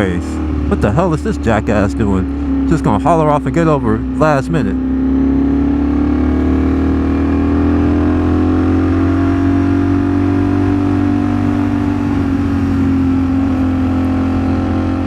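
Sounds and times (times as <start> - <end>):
motorcycle engine cruising: 0.0 - 15.0
wind rumble on microphone: 10.2 - 15.0.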